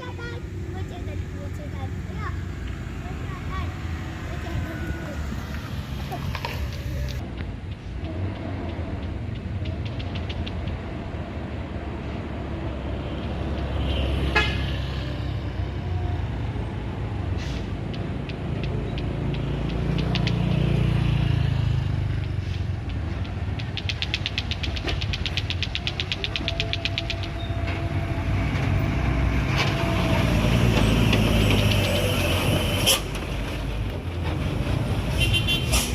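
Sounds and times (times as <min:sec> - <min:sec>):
heavy vehicle engine rumble: 0:00.0 - 0:35.9
rapid ticking: 0:07.0 - 0:11.0, 0:22.2 - 0:27.8
sharp click: 0:17.9 - 0:20.5, 0:22.1 - 0:27.4.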